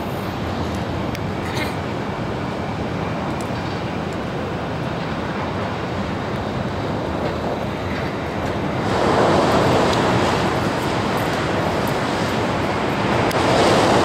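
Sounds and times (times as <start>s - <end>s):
train rumbling hiss from inside: 4.7s - 14.0s.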